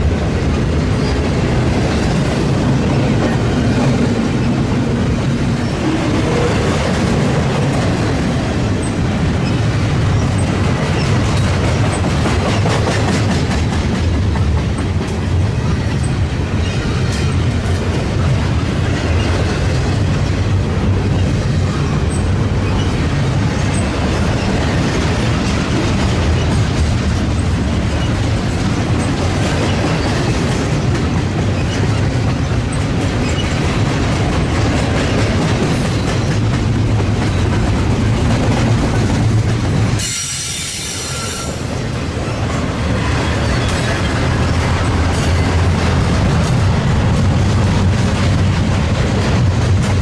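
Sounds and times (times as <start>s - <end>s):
freight cars rumbling on rails: 0.0s - 50.0s
high ringing wheel squeal: 40.0s - 41.7s.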